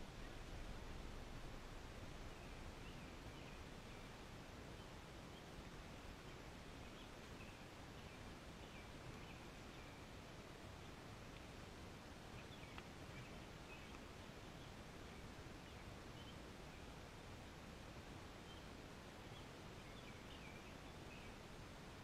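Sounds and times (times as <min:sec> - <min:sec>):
faint background hiss: 0:00.0 - 0:22.0
faint bird chirps: 0:18.4 - 0:21.5.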